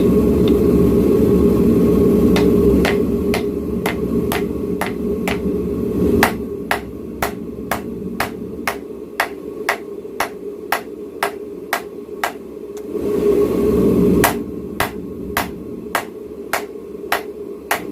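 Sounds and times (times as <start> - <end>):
low rushing noise: 0.0 - 17.7
hammer striking steel on anvil: 2.4 - 5.5, 6.2 - 12.4, 14.2 - 17.9.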